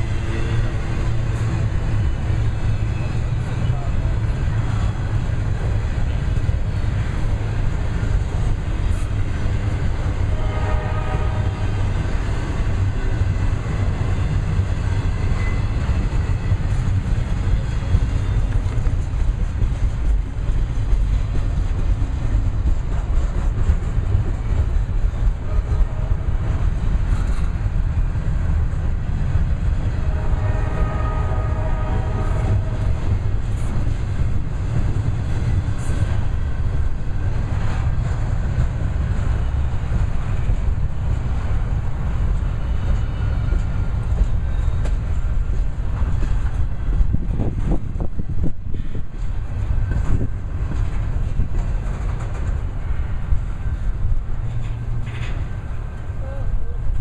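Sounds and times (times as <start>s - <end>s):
train horn: 0.0s - 0.9s, 10.0s - 12.0s, 25.3s - 26.6s, 29.8s - 33.2s
freight train rumbling past: 0.0s - 57.0s.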